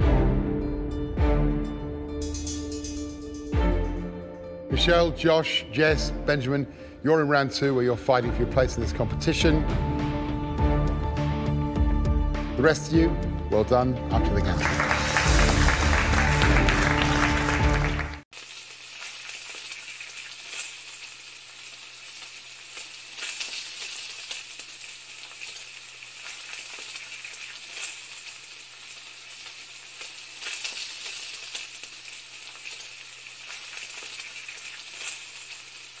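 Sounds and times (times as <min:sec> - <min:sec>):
music: 0:00.0 - 0:18.2
applause: 0:14.2 - 0:18.2
food frying in hot oil: 0:18.3 - 0:36.0.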